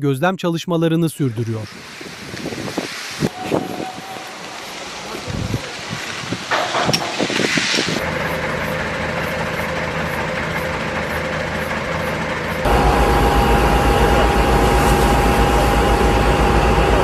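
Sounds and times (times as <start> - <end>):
heavy vehicle engine running: 4.3 - 17.0
loud engine rumble with whine: 4.8 - 17.0.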